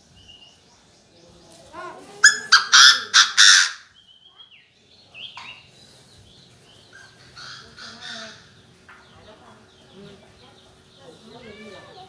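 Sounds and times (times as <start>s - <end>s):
bird harsh rasping calls: 2.2s - 4.0s, 6.9s - 8.8s.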